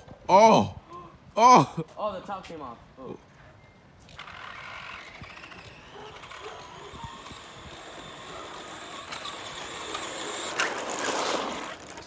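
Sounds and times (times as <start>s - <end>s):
radio-controlled car motor whining: 4.1s - 12.0s.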